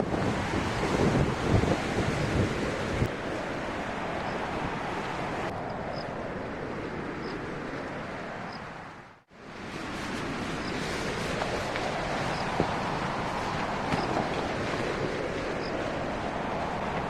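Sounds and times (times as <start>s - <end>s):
strong wind blowing: 0.0s - 17.0s.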